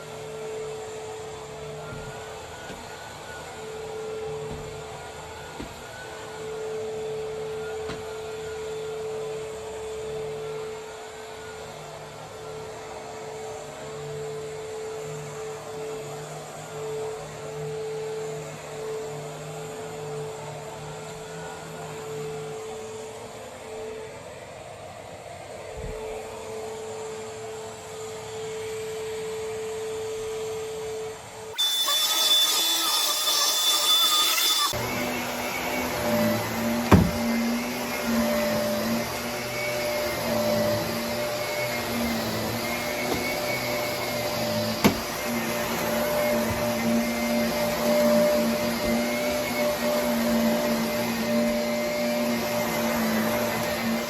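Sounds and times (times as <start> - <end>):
vacuum cleaner humming: 0.0 - 24.1, 25.6 - 54.0
high-pitched whine: 26.4 - 35.4.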